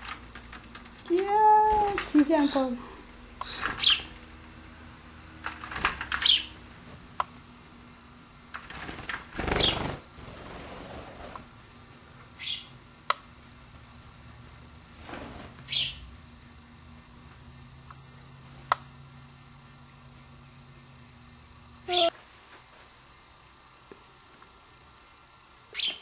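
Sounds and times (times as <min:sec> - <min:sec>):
bird chirping: 0:03.4 - 0:04.1, 0:06.2 - 0:06.6, 0:12.4 - 0:12.7, 0:15.7 - 0:16.0, 0:25.7 - 0:26.0
wing flapping: 0:05.4 - 0:06.5, 0:08.5 - 0:11.5, 0:14.9 - 0:15.9.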